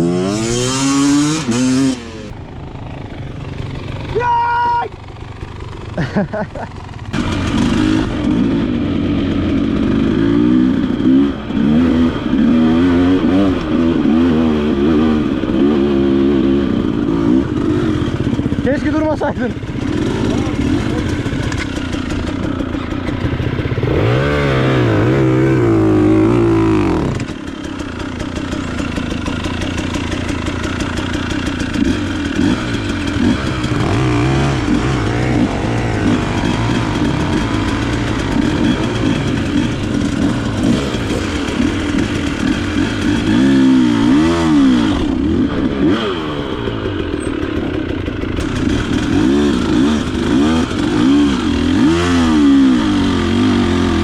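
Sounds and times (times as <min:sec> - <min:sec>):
motorcycle engine revving: 0:00.0 - 0:04.3, 0:05.0 - 0:54.0.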